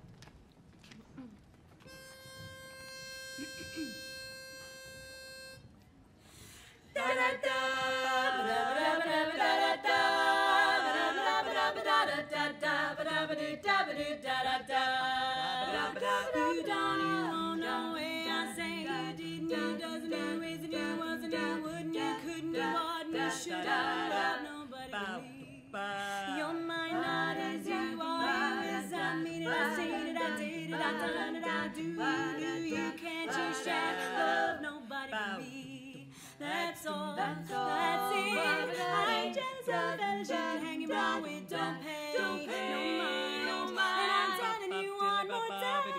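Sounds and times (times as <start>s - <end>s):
women singing a cappella harmony: 6.3s - 45.9s.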